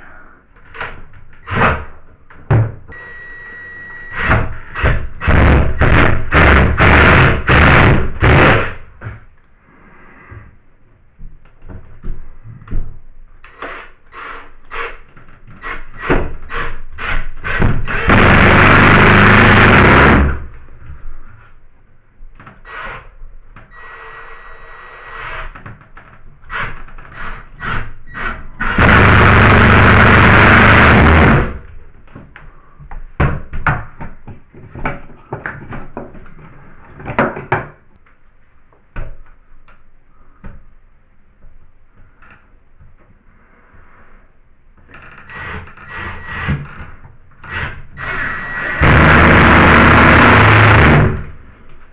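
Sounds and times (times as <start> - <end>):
power drill driving screws: 15.6 - 20.4, 27.2 - 31.6, 47.5 - 51.2.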